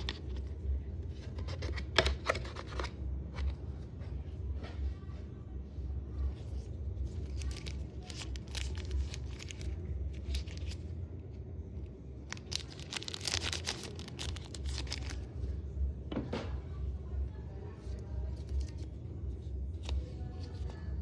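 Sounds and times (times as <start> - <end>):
low steady hum: 0.0 - 21.0
packaging crinkling and rustling: 7.0 - 10.8, 12.2 - 15.4.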